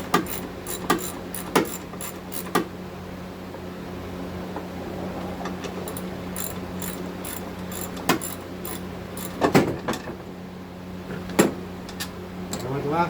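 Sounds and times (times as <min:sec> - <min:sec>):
metal clanks: 0:00.0 - 0:02.6
ratchet wrench clicking: 0:00.0 - 0:02.6, 0:05.9 - 0:09.5.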